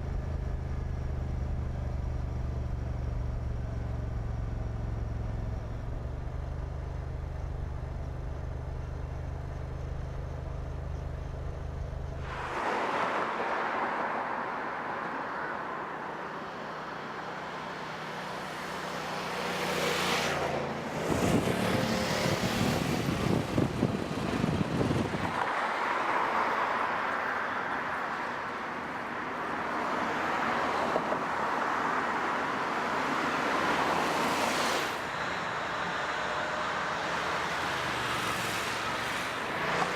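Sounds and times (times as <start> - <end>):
car engine drone: 0.0 - 25.8
road and tyre noise: 0.0 - 39.9.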